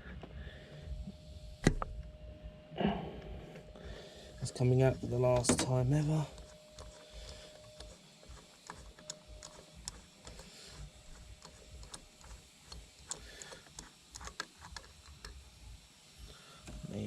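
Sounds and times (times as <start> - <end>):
ratchet clicking: 5.6 - 15.5.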